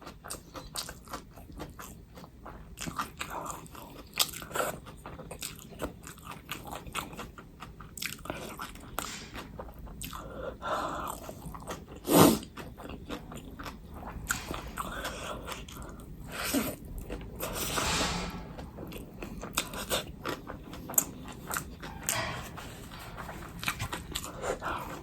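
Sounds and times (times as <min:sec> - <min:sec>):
person chewing and biting food: 0:00.0 - 0:17.3.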